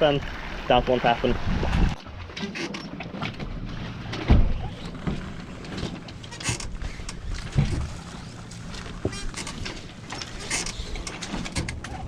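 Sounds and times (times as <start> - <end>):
knocks and clatter on sailboat: 0.7 - 12.0.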